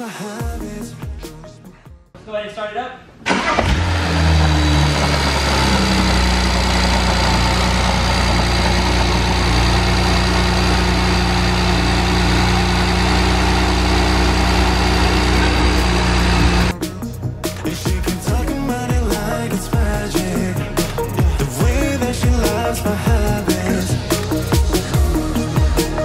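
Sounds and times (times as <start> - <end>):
car engine idling: 3.3 - 17.2.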